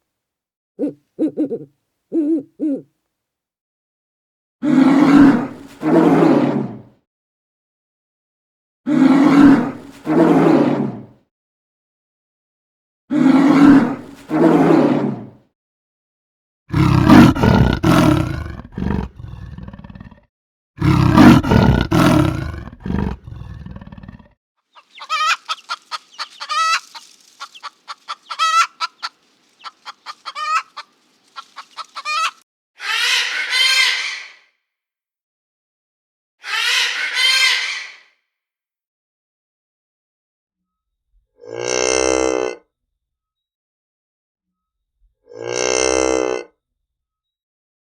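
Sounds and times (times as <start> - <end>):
large animal roaring: 16.7 - 24.4
chicken clucking: 24.8 - 32.4.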